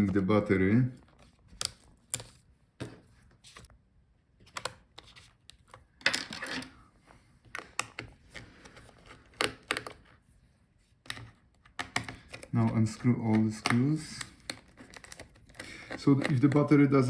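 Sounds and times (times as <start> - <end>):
laptop parts clicking and scraping: 1.0 - 3.7, 4.4 - 6.8, 7.4 - 10.2, 11.0 - 16.7.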